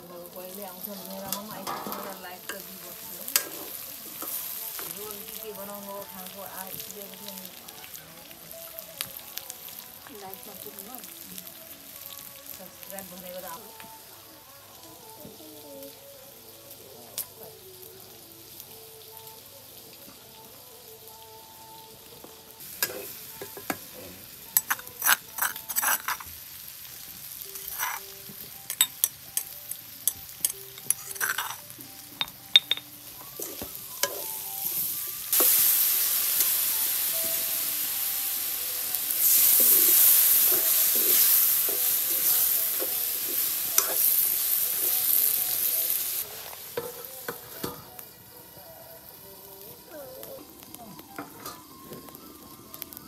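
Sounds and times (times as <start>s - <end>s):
curry sizzling in a wok: 0.0s - 53.0s
spoon tapping containers: 32.2s - 34.2s.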